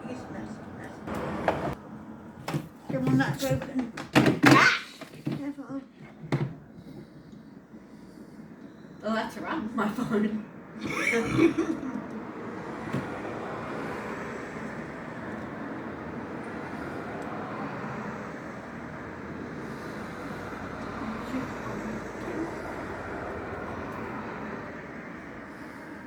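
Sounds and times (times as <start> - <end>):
freight train rumbling past: 7.0 - 26.0.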